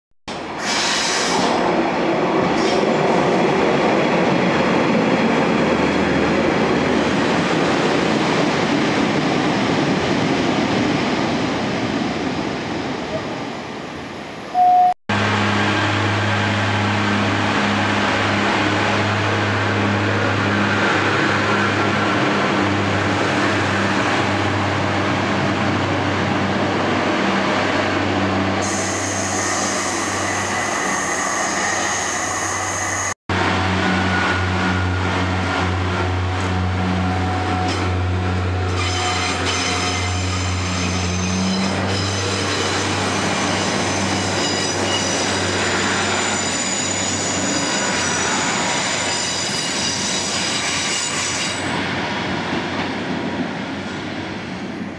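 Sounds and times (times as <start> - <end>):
low train engine hum: 0.3 - 54.9
high-pitched wheel squeal: 28.6 - 33.2, 38.7 - 51.6.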